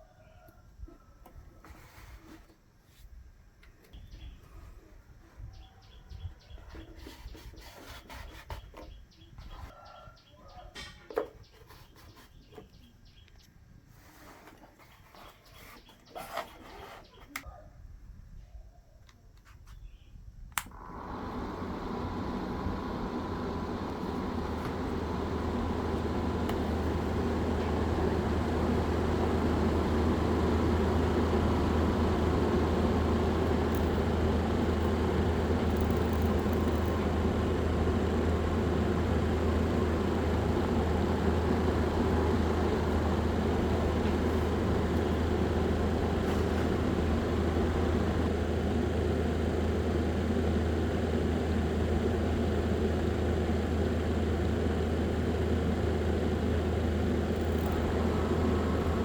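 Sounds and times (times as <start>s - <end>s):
small electric fan humming: 20.4s - 59.0s.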